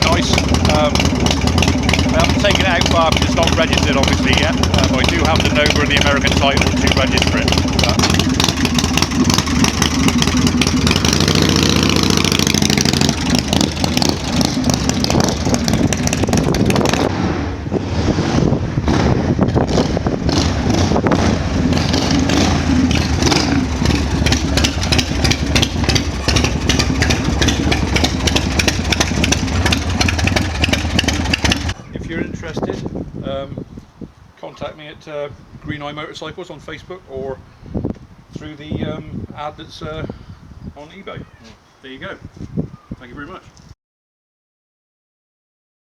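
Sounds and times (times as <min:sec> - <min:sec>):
motorcycle engine idling: 0:00.0 - 0:17.1, 0:19.6 - 0:32.1.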